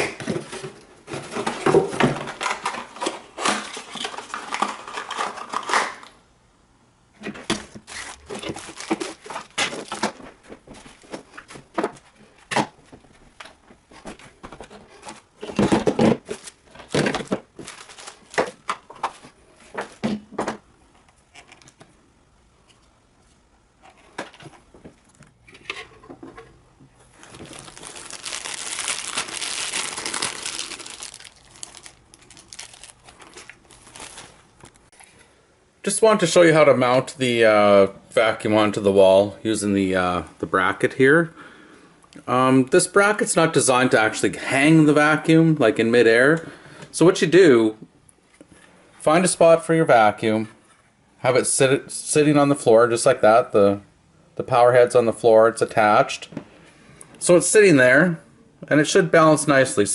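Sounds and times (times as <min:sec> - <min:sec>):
crinkling and rustling: 0:00.0 - 0:06.1, 0:07.2 - 0:22.0, 0:22.6 - 0:35.3.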